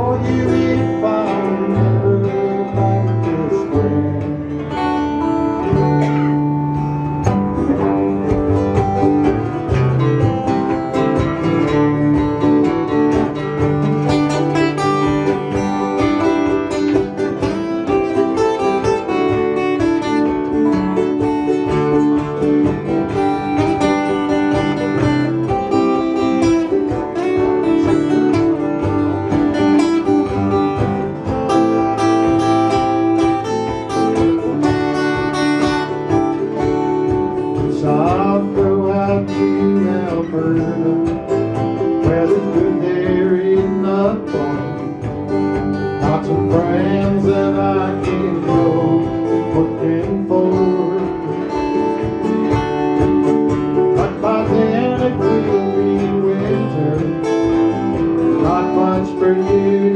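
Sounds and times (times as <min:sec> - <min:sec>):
acoustic guitars playing folk: 0:00.0 - 0:59.9.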